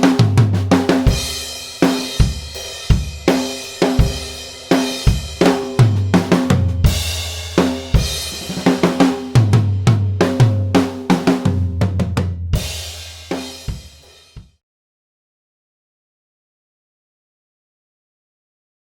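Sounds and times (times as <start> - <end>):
drum kit playing: 0.0 - 14.6.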